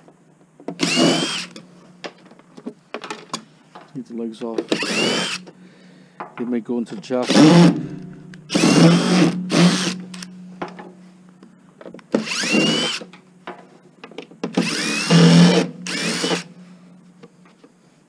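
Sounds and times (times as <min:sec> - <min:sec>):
power drill running: 0:00.8 - 0:01.6, 0:04.6 - 0:05.5, 0:07.2 - 0:07.8, 0:08.5 - 0:10.3, 0:12.1 - 0:13.1, 0:14.5 - 0:16.5.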